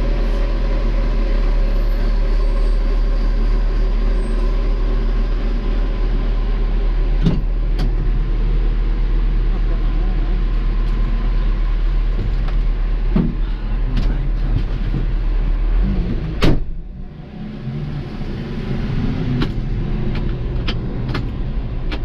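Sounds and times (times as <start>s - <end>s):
diesel engine low drone: 0.0s - 22.0s.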